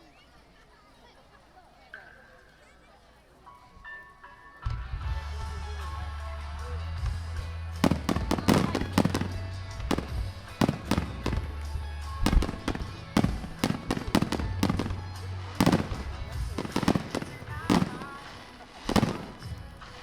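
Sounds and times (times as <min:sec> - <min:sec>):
fireworks bursting: 0:07.8 - 0:20.0.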